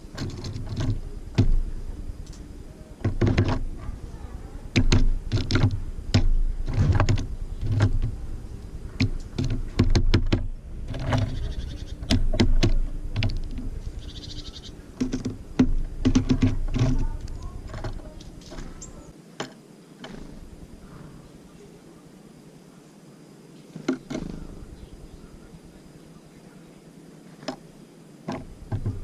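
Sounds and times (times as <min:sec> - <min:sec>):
beaks tapping on bird feeder: 0:00.1 - 0:01.6, 0:02.2 - 0:03.9, 0:04.7 - 0:08.2, 0:08.9 - 0:20.3, 0:28.3 - 0:29.0.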